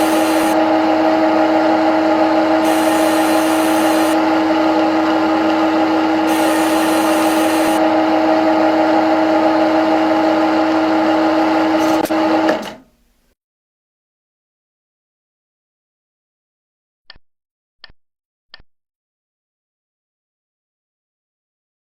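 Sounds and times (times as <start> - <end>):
high hiss bursts: 0.0 - 0.6, 2.6 - 4.2, 6.0 - 7.8
lathe machine whine: 0.0 - 12.8
grinding cutting noise: 0.0 - 12.9.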